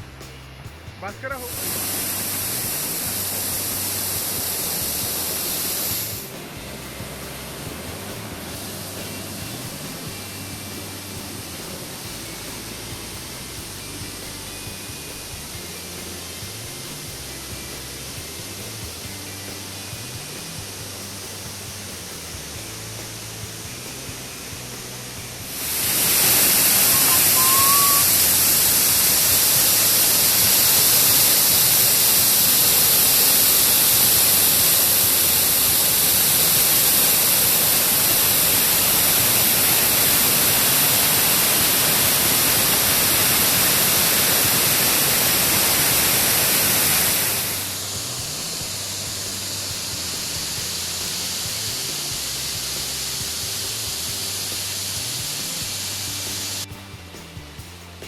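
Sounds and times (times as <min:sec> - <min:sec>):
loud rushing hiss: 0:00.0 - 0:58.0
short rising chirp: 0:25.6 - 0:30.4.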